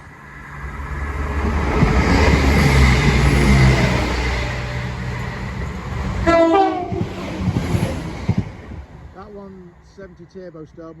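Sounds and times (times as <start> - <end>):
diesel train engine rumble: 0.0 - 11.0
train wheel noise: 0.5 - 10.6.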